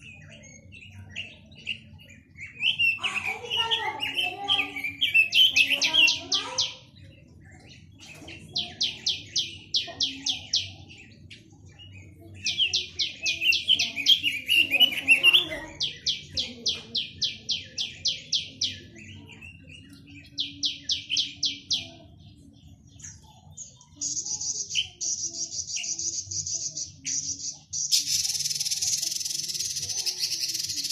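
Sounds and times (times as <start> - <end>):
songbird singing: 0.0 - 30.9.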